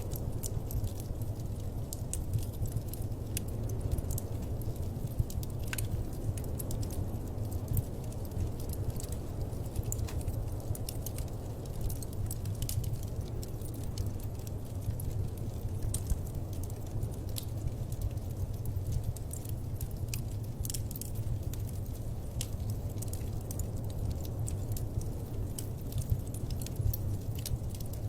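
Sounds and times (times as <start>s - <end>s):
low fire rumble: 0.0s - 28.0s
wood fire crackling and popping: 0.0s - 28.0s.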